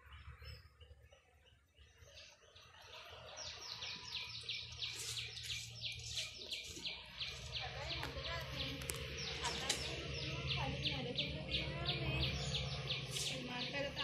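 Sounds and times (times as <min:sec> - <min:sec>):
bird chirping rapidly: 0:03.4 - 0:14.0.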